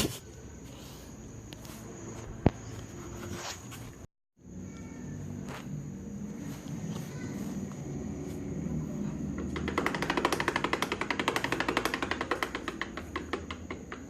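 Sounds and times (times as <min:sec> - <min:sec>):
scooter engine running: 0:07.7 - 0:13.6
rapid even knocking: 0:09.2 - 0:14.0.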